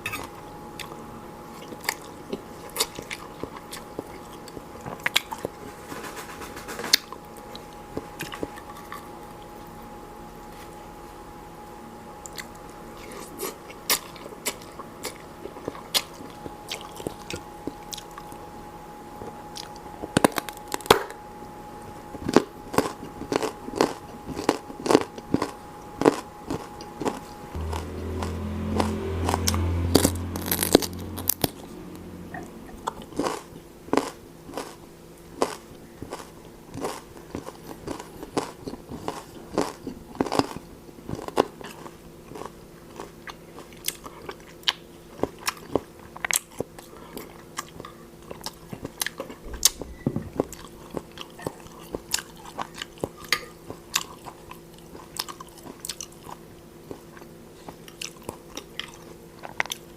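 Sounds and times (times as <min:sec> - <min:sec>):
person crunching food: 0:22.2 - 0:31.6, 0:32.8 - 0:59.9
low rumble: 0:27.5 - 0:33.6, 0:49.4 - 0:51.0.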